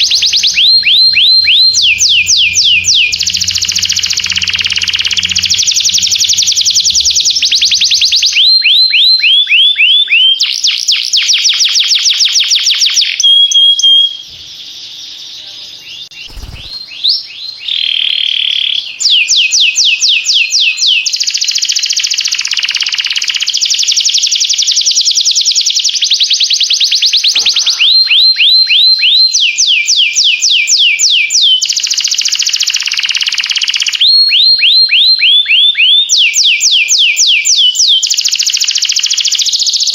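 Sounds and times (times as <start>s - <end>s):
canary singing: 0.0s - 10.8s, 13.2s - 19.5s, 26.3s - 29.2s.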